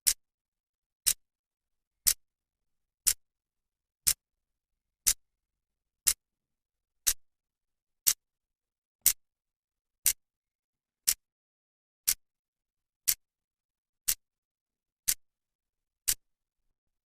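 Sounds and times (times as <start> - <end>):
clock ticking: 3.0 - 3.2, 4.0 - 4.2, 8.0 - 8.2, 10.0 - 10.2, 11.0 - 11.2, 13.0 - 13.2, 14.0 - 14.2, 15.0 - 15.2, 16.0 - 16.2.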